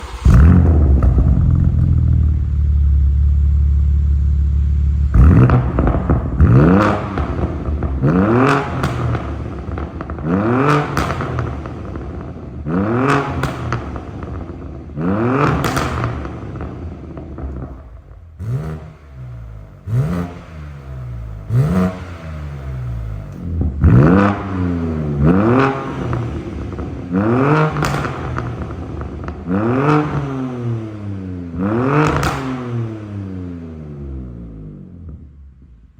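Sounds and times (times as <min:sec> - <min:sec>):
engine revving with crackles: 0:00.0 - 0:02.5, 0:05.0 - 0:35.3
car engine idling: 0:00.0 - 0:14.8, 0:15.7 - 0:31.0.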